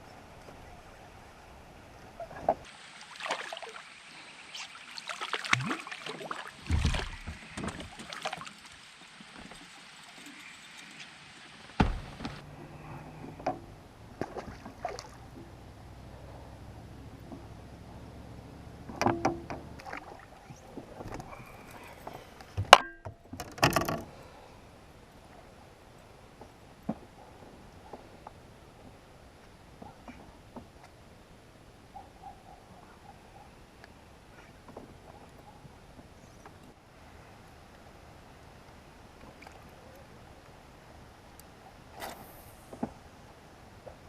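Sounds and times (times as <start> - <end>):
dull heavy thumps: 6.7 - 7.9, 11.8 - 12.4.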